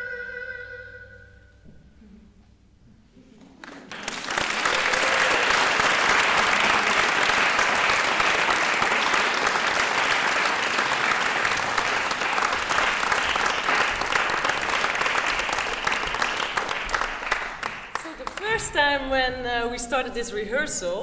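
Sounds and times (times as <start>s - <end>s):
audience applauding: 3.5s - 19.0s.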